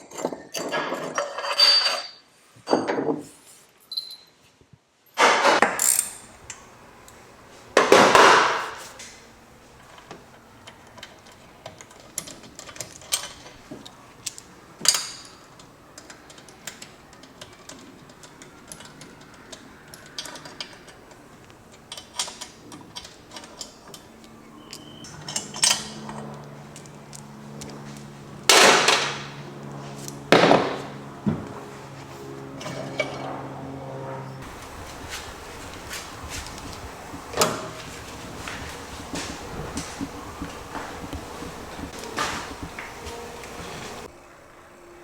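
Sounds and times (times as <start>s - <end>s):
metal parts and tools clinking: 0.0s - 3.0s, 5.6s - 7.2s, 10.8s - 27.2s
steady low hum: 25.9s - 45.0s.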